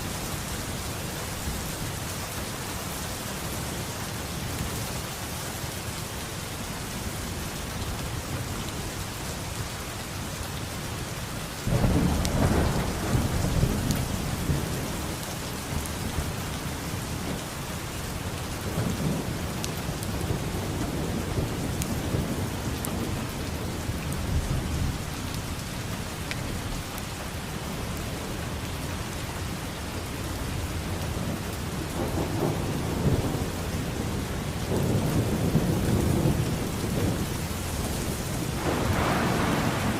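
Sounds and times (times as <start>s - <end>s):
heavy rain: 0.0s - 39.9s
rolling thunder: 11.7s - 15.1s, 31.1s - 39.9s.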